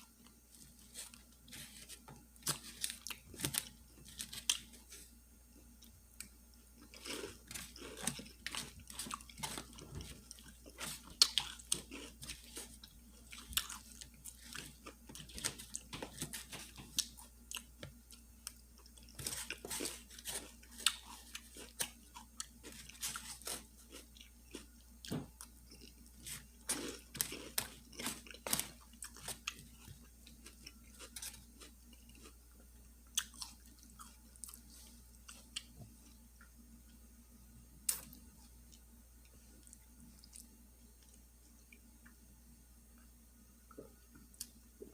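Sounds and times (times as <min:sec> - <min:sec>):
person chewing food: 0:00.1 - 0:37.0, 0:37.9 - 0:42.2.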